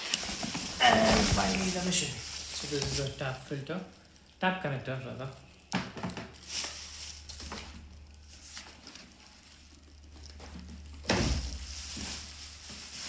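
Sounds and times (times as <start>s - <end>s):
packaging scraping: 0.0s - 3.6s, 6.2s - 13.0s
packaging rustling and crinkling: 0.0s - 13.0s.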